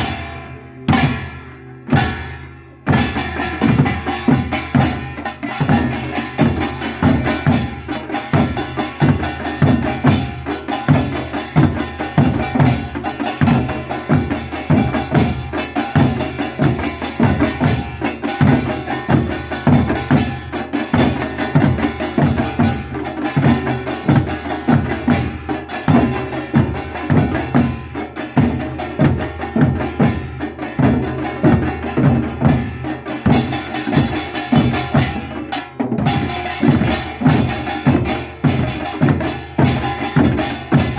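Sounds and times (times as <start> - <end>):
clacking percussion strikes: 0.0 - 40.9.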